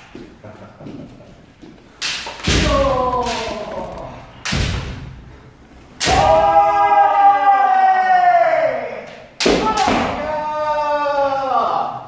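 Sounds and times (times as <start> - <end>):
bamboo sword hits: 2.0 - 3.7, 6.0 - 6.4, 9.4 - 10.2.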